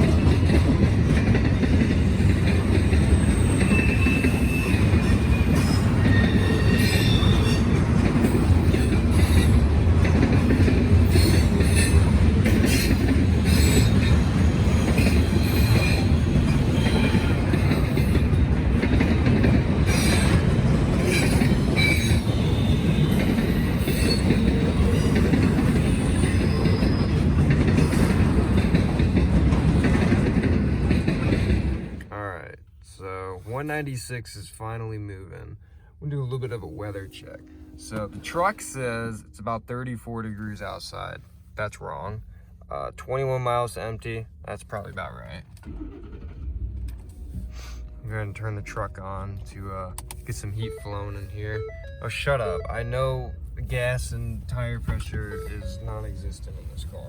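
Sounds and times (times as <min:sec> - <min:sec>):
train wheels rumbling on rail: 0:00.0 - 0:57.0
wheel squeals and clicks: 0:02.2 - 0:09.6, 0:11.0 - 0:19.1, 0:19.8 - 0:28.3.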